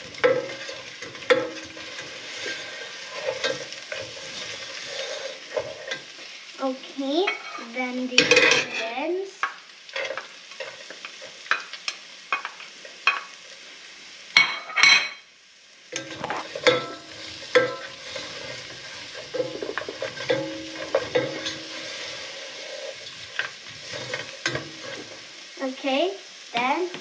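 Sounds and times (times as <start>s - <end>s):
spatula scraping and stirring: 0.0s - 6.5s, 9.9s - 13.3s, 16.0s - 25.4s
pot sizzling: 0.0s - 27.0s
metal spoon clinking: 16.0s - 17.9s, 19.3s - 21.8s.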